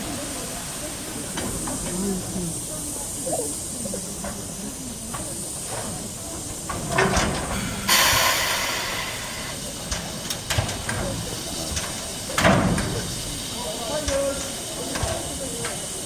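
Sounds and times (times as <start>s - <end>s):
loud blast of steam: 0.0s - 16.0s
steam locomotive hissing: 0.0s - 16.0s.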